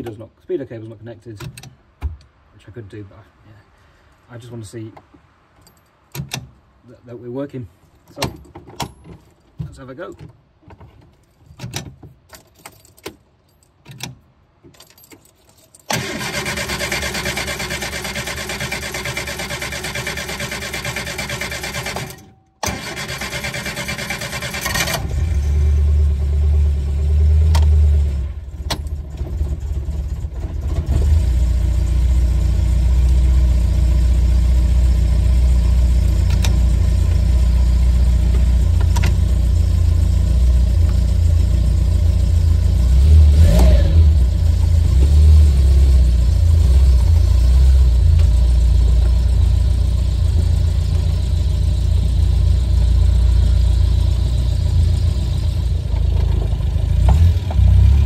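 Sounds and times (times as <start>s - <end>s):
car engine driving off: 15.9s - 58.0s.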